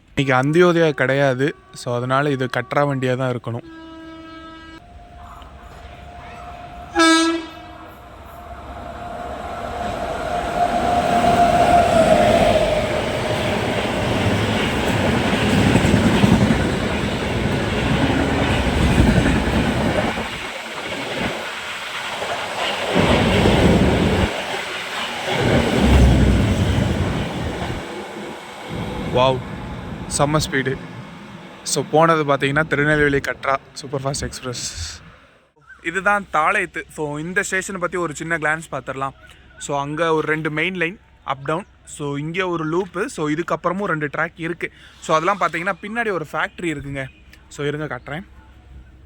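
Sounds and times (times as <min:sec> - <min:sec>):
train horn blast: 0:03.6 - 0:08.8
train rushing past: 0:04.8 - 0:35.3.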